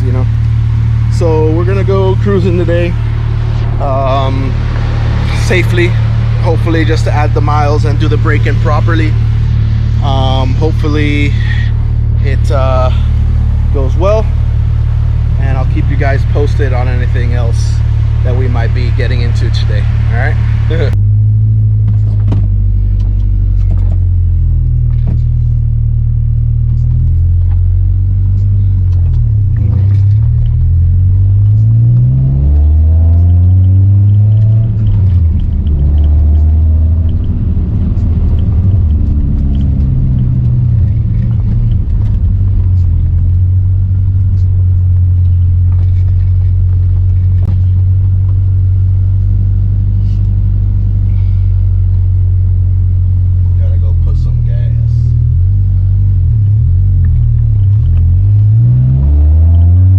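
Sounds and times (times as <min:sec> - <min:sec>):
car engine droning: 0:00.0 - 0:59.9.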